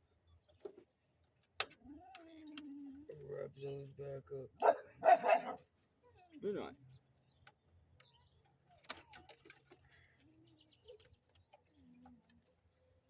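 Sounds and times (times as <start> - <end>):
faint clicks and taps: 7.3 - 13.0.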